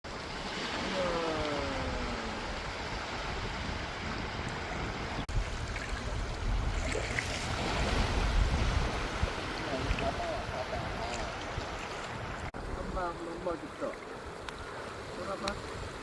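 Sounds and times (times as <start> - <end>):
surf washing on beach: 0.1 - 16.0
wind buffeting microphone: 1.0 - 16.0.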